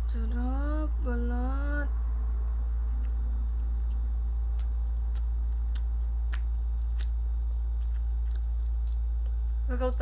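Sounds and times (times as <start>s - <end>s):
low hum: 0.0s - 10.0s
chewing fries clicks: 3.8s - 9.5s.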